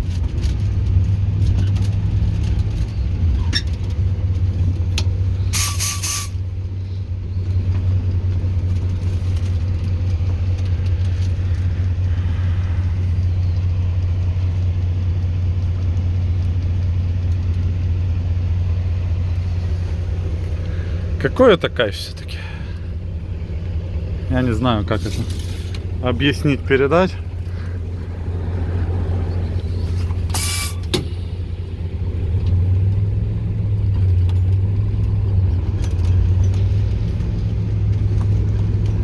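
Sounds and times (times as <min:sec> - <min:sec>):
locomotive diesel engine hum: 0:00.0 - 0:39.0
short loud tonal hiss: 0:05.5 - 0:06.4, 0:30.3 - 0:31.3.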